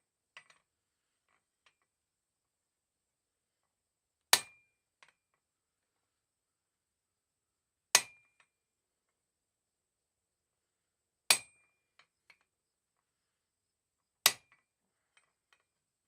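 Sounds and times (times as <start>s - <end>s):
hammer striking steel on anvil: 4.4s - 4.7s, 11.3s - 11.6s.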